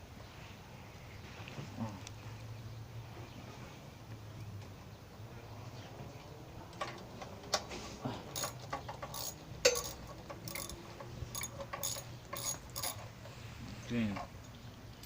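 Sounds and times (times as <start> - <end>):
metal tools clinking: 8.3 - 14.6
ratchet clicking: 8.4 - 13.1.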